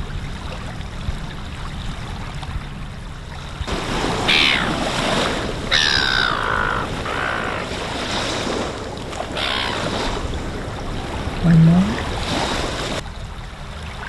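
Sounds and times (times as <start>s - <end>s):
bird harsh calls: 4.3s - 4.8s, 5.7s - 7.7s, 9.4s - 9.9s.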